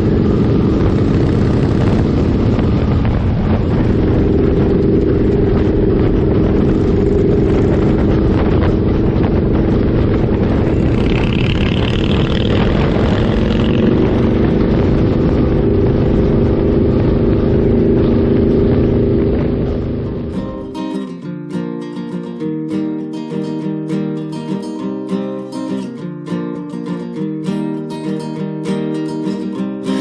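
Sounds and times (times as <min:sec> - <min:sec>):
wind buffeting microphone: 0:00.0 - 0:21.0
motorcycle engine cruising: 0:00.0 - 0:21.2.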